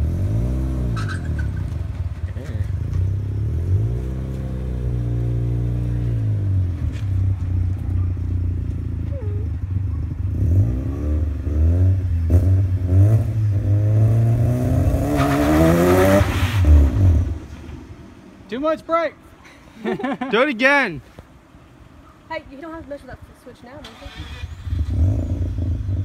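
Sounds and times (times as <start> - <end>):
rotary engine revving: 23.8 - 26.0.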